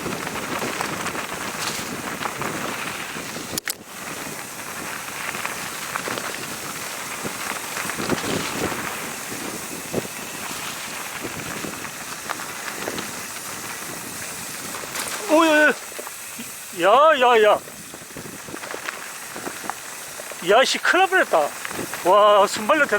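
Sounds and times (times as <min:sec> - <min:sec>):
bike rattling over bumps: 0:00.0 - 0:22.9
bike tyres crackling on gravel: 0:00.0 - 0:22.9
wind noise: 0:00.0 - 0:22.9.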